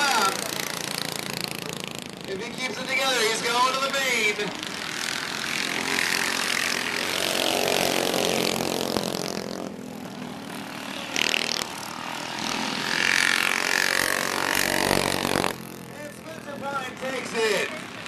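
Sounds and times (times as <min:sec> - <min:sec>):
minibike engines revving: 0:00.0 - 0:18.0.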